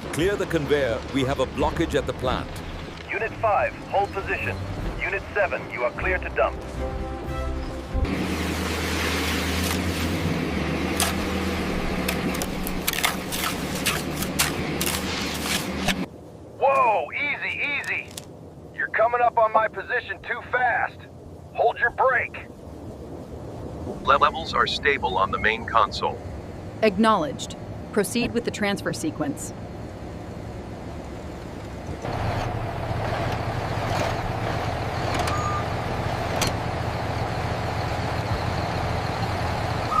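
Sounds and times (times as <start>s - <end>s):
gravel cracking and clattering: 0.0s - 3.3s
heavy vehicle engine running: 0.0s - 16.1s, 25.2s - 40.0s
construction machinery humming: 0.0s - 23.3s, 24.1s - 40.0s.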